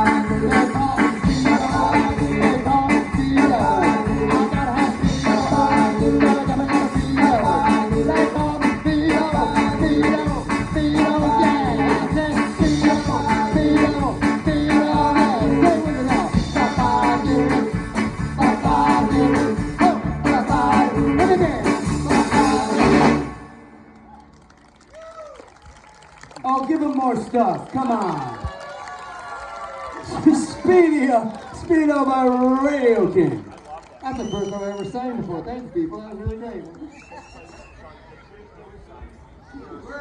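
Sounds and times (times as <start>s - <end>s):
person singing: 0.0s - 23.3s
rock and roll band playing: 0.0s - 23.8s.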